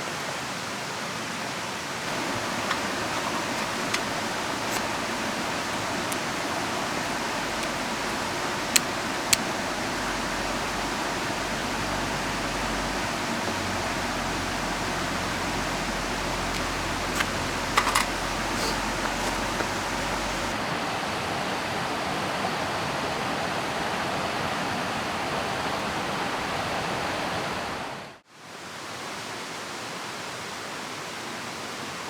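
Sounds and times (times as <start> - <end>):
river water rushing: 0.0 - 32.0
rain falling: 2.0 - 20.6
sharp ticks: 2.1 - 20.5.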